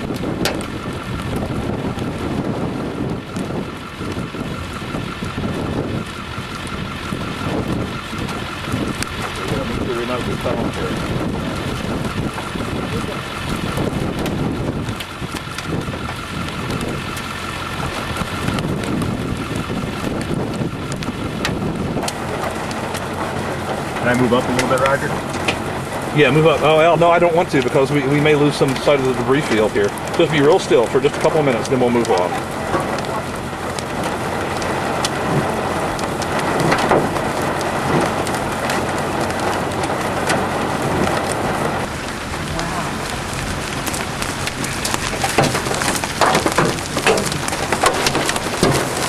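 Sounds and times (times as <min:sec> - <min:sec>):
rain falling on a vehicle: 0:00.0 - 0:49.0
storm wind buffeting microphone: 0:00.0 - 0:49.0.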